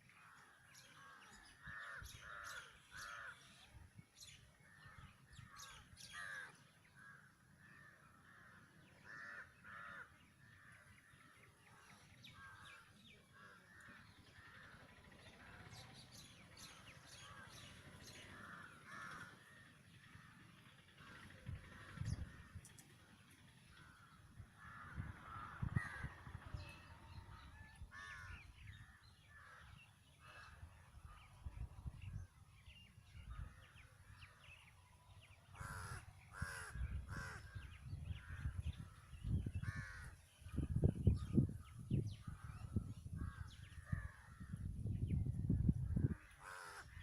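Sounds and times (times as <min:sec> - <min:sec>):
crows cawing: 0:00.4 - 0:03.5, 0:04.9 - 0:11.2, 0:17.1 - 0:20.4, 0:23.8 - 0:26.4, 0:27.4 - 0:30.8, 0:35.5 - 0:38.5, 0:39.6 - 0:40.2, 0:46.1 - 0:47.0.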